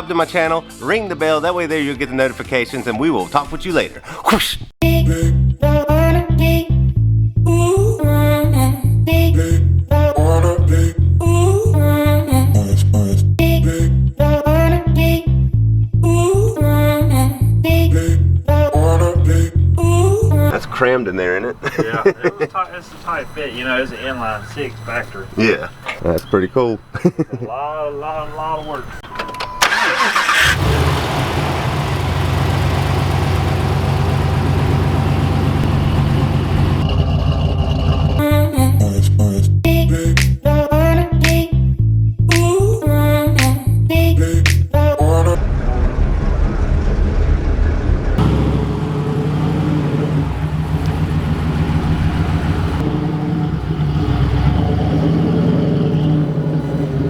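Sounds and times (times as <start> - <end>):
car engine idling: 19.9 - 38.2, 48.2 - 57.0.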